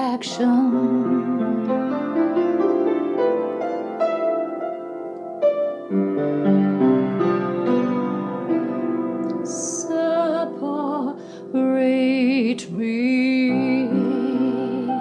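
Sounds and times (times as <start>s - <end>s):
slow piano chords: 0.0s - 15.0s
person singing worship song: 9.4s - 15.0s.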